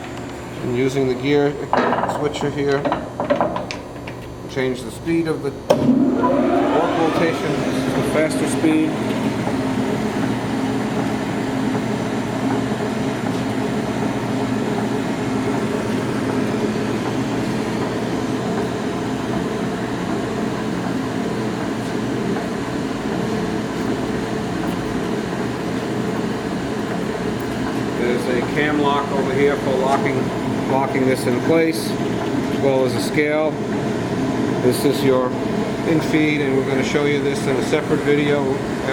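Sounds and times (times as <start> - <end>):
drill grinder humming: 5.8 - 9.8.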